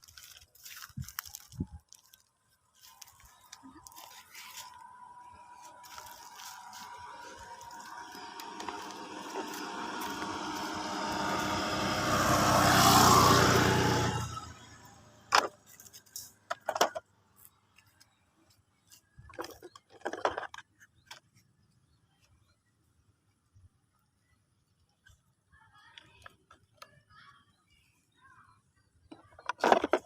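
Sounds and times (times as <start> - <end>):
motor vehicle passing: 2.8 - 16.2.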